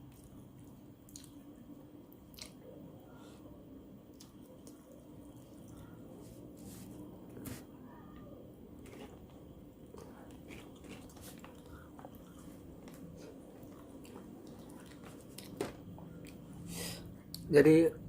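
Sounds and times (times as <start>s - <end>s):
person chewing food: 0.0s - 1.6s, 2.2s - 2.7s, 4.1s - 6.3s, 8.8s - 16.5s.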